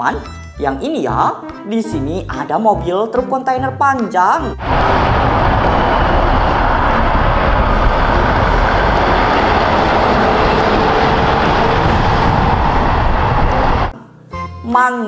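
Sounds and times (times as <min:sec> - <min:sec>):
truck engine rumbling: 0:04.6 - 0:13.9.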